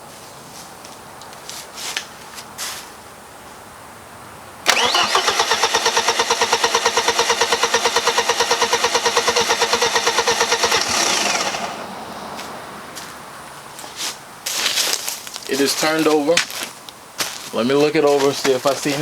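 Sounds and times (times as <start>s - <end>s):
engine cranking without firing: 4.6s - 12.2s.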